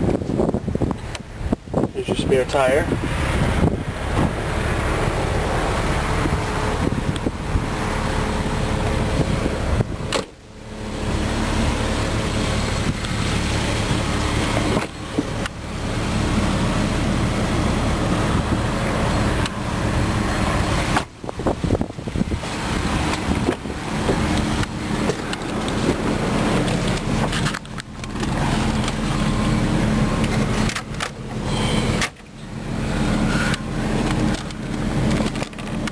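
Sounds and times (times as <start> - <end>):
car engine idling: 0.0 - 35.9.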